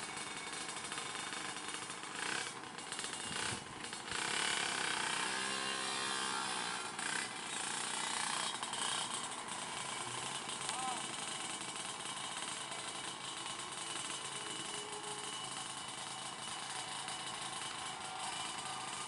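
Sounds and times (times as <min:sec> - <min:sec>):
diesel truck engine labouring: 0:00.0 - 0:19.0
rattling clatter: 0:00.0 - 0:19.0.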